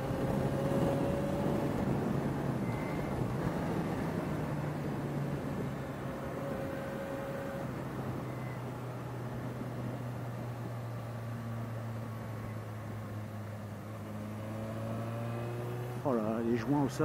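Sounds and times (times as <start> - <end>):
rushing wind noise: 0.0 - 10.8
motorcycle engine cruising: 0.0 - 17.0.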